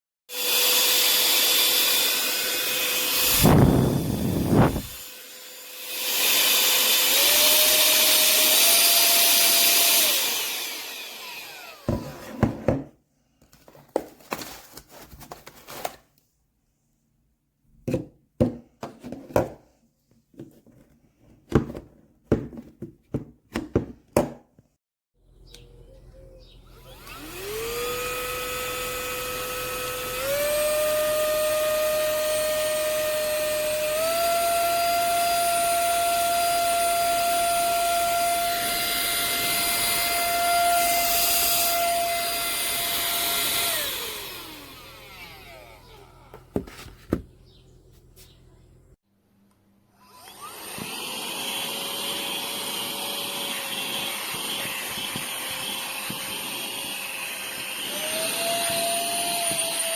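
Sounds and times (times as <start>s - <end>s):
handheld vacuum motor whine: 0.3s - 12.7s, 26.5s - 46.9s, 50.0s - 59.9s.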